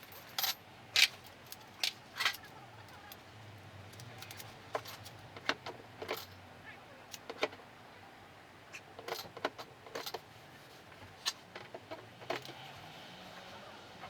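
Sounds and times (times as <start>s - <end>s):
metal tools clinking: 0.0s - 2.5s, 6.0s - 6.4s, 9.0s - 10.2s.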